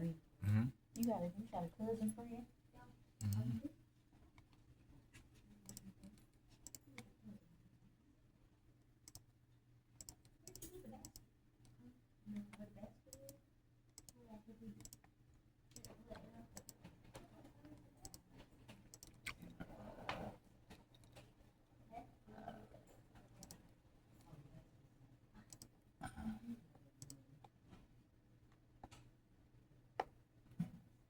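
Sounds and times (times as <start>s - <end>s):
faint small clicks: 5.6s - 7.1s, 14.8s - 15.1s.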